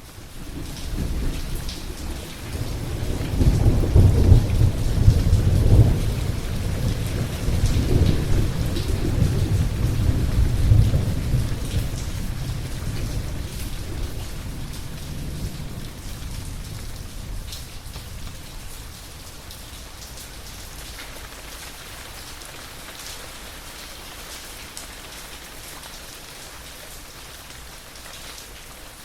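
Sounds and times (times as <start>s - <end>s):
heavy rain: 0.0s - 29.0s
rolling thunder: 0.5s - 18.8s.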